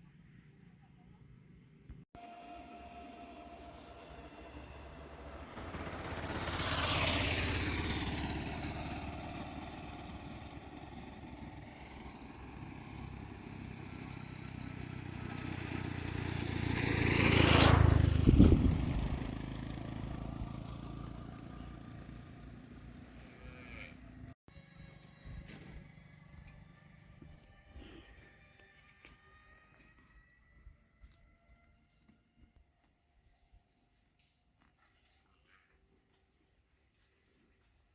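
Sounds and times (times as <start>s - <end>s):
road vehicles passing by: 0.1s - 29.9s.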